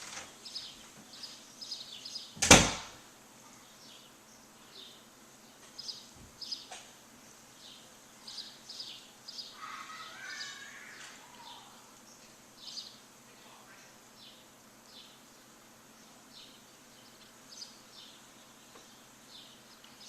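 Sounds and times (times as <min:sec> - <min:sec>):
birds chirping: 0:00.0 - 0:20.0
steady background hiss: 0:00.0 - 0:20.0
bird chattering call: 0:09.4 - 0:11.8.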